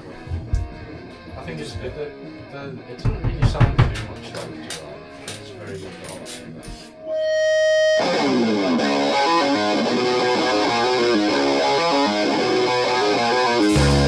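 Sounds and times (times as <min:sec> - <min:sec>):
distorted electric guitar riff: 0:07.0 - 0:14.0.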